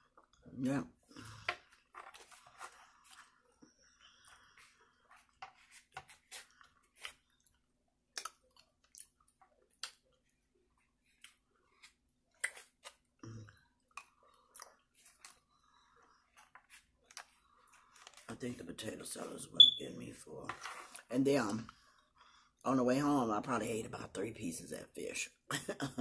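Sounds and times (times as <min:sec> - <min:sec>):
person chewing soft food: 0:01.2 - 0:18.2.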